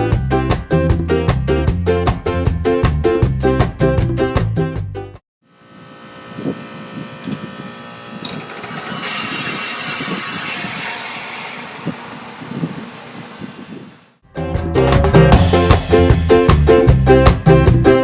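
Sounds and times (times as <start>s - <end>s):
heat pump machine hum: 5.5s - 14.2s.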